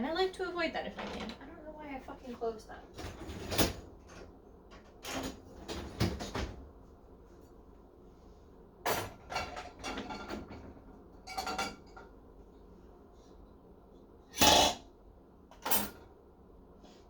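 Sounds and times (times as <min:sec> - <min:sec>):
dishes and cutlery clattering: 0:08.9 - 0:12.2.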